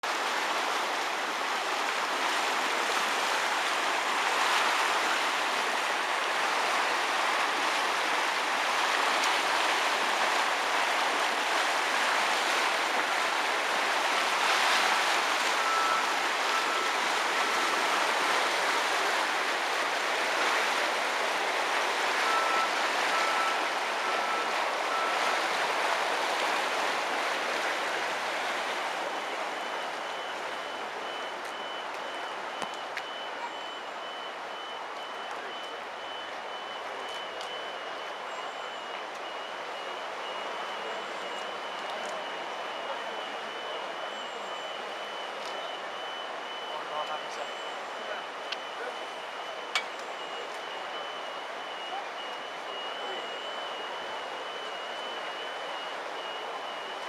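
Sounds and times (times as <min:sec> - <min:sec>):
short electronic beeps: 0:15.6 - 0:17.0, 0:22.2 - 0:25.3, 0:29.1 - 0:57.0.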